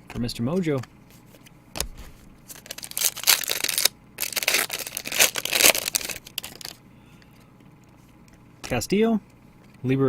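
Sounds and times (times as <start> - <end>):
foil wrapper tearing and crinkling: 2.5 - 6.8.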